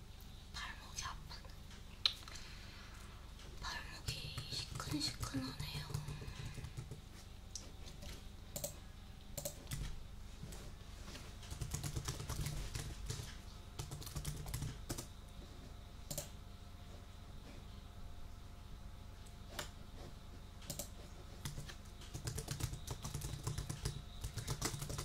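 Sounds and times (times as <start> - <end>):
typing on a keyboard: 4.0 - 7.0, 8.0 - 8.8, 9.4 - 9.9, 11.4 - 15.1, 20.6 - 25.0.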